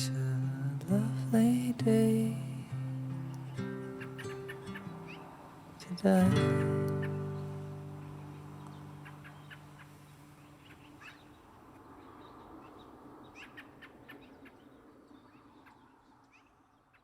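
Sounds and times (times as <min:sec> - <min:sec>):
acoustic guitar chord: 0:00.0 - 0:10.3
birds chirping: 0:00.0 - 0:17.0.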